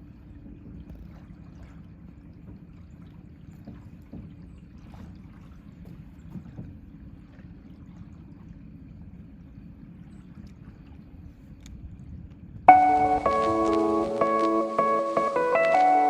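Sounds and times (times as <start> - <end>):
low rumble of water and wind: 0.0 - 16.0.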